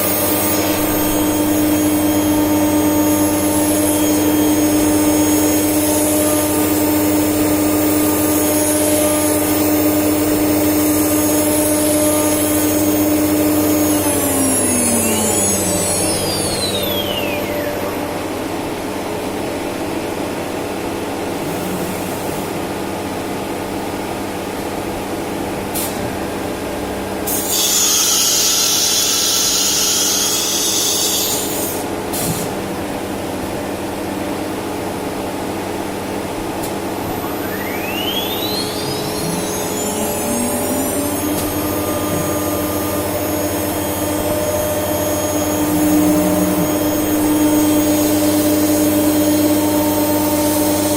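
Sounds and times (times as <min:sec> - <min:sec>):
router spindle whine: 0:00.0 - 0:23.7, 0:33.0 - 0:50.9
machine hum: 0:00.0 - 0:27.6, 0:32.6 - 0:50.9.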